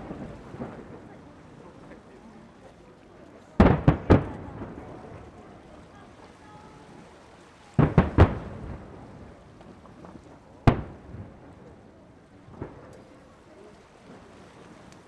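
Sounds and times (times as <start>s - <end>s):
fireworks bangs: 0.0s - 1.6s, 3.6s - 5.4s, 7.8s - 11.6s.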